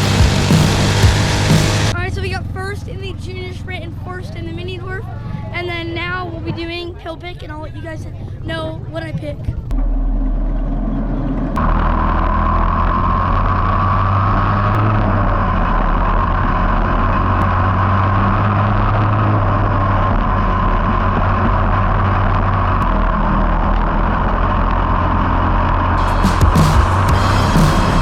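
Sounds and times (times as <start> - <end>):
race car engines droning: 0.0 - 28.0.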